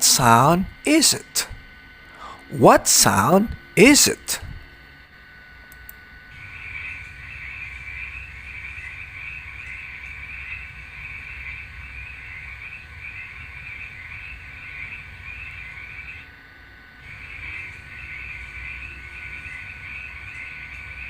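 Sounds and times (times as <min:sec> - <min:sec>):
frogs calling in chorus: 0:06.3 - 0:16.3, 0:17.0 - 0:21.0.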